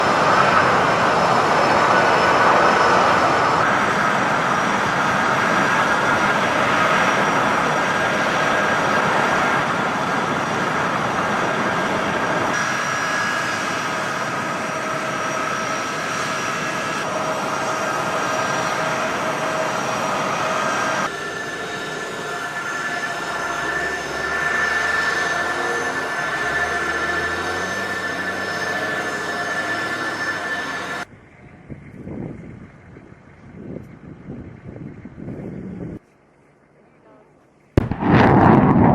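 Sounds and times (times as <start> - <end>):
jet engines roaring and whining: 0.0 - 36.0, 37.8 - 38.9
low rumble: 37.8 - 38.9.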